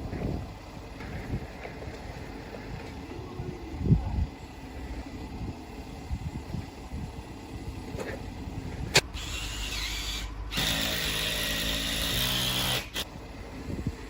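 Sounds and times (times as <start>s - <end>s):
power tool whine: 9.0s - 13.2s.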